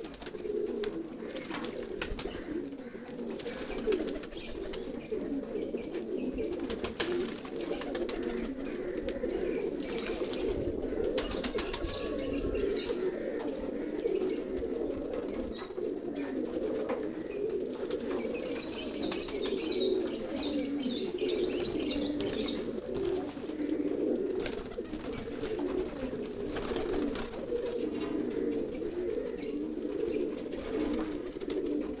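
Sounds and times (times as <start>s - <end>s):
wings fluttering: 0.0s - 5.0s, 9.8s - 13.6s, 24.4s - 28.1s
pigeons cooing: 0.0s - 32.0s.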